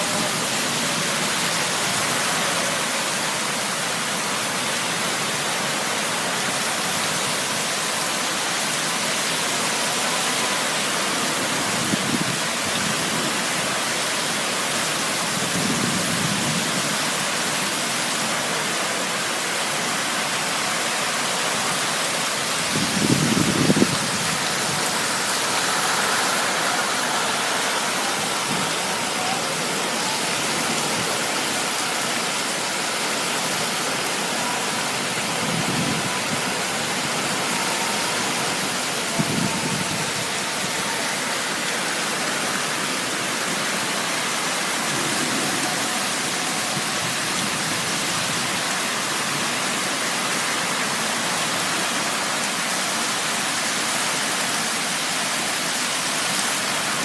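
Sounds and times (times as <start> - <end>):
storm rushing noise: 22.6 - 32.0
wind buffeting microphone: 22.7 - 25.0.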